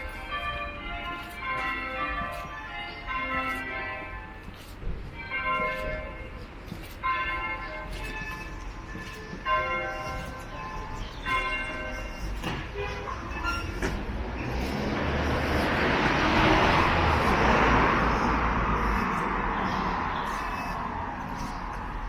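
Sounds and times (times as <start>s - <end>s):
passing train rumble: 7.6s - 22.0s.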